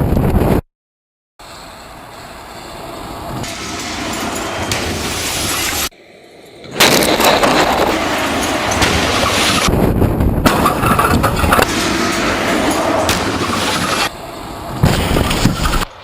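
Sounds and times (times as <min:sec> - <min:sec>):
loud crashing with crackles: 0:06.7 - 0:16.0
loud truck impact: 0:06.7 - 0:16.0.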